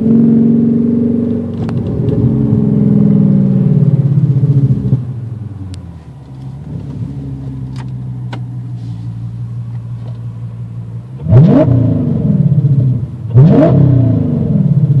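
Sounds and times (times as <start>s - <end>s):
car engine idling: 0.7s - 13.5s
engine revving: 11.2s - 15.0s.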